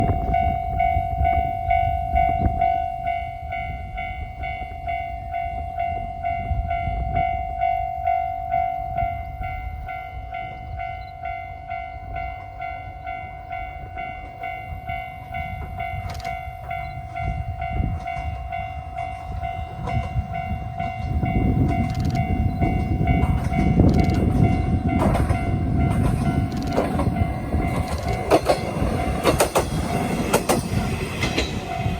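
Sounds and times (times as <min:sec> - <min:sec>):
diesel railcar engine rumble: 0:00.0 - 0:31.9
level-crossing bell ringing: 0:00.0 - 0:31.9
train wheel clatter: 0:15.2 - 0:31.9.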